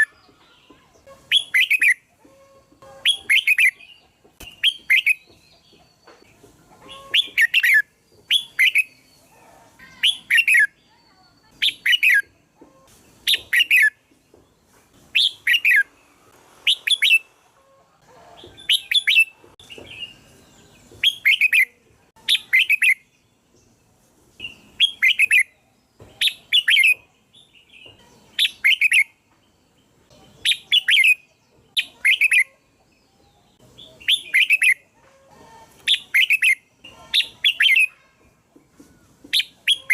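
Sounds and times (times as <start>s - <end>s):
bird chirping phrases: 0.0s - 17.3s, 18.4s - 35.0s, 35.7s - 39.9s.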